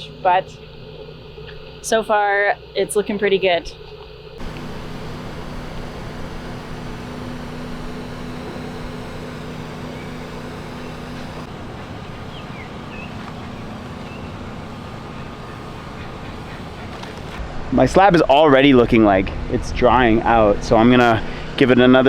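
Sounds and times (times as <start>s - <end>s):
motor humming: 4.0s - 17.4s
hiss: 4.4s - 11.5s, 12.5s - 17.4s.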